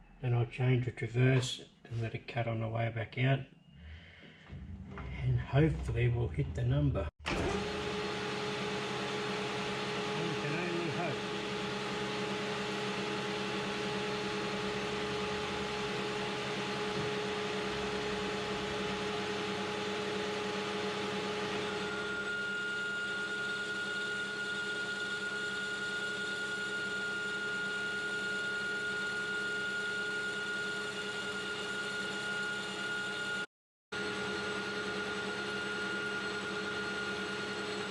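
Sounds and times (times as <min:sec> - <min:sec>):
lathe motor and gear hum: 0:07.3 - 0:29.7
high-pitched lathe whine: 0:21.5 - 0:37.9.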